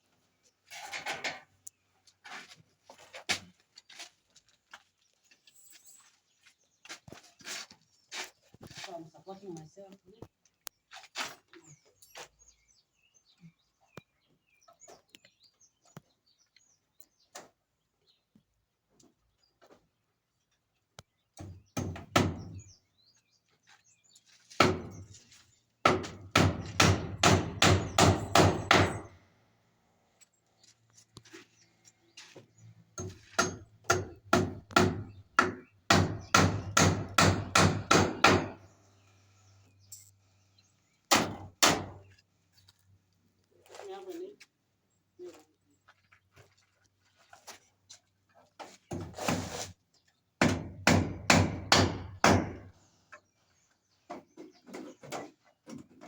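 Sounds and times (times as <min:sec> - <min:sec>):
hammer driving nails: 0:25.8 - 0:29.1, 0:33.0 - 0:38.6, 0:41.1 - 0:42.0, 0:50.4 - 0:52.7.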